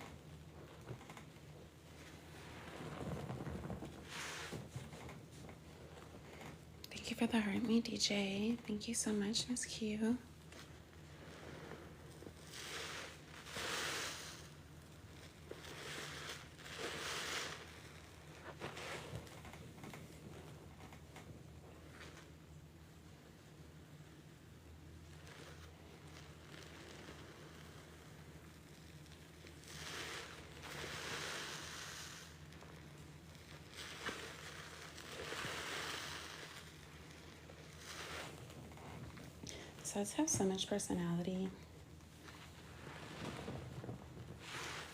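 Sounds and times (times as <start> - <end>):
small crackles: 0.0 - 44.9
wet sponge squishing: 10.4 - 20.7, 25.0 - 39.8
soapy water gushing: 10.6 - 19.4, 25.1 - 40.0.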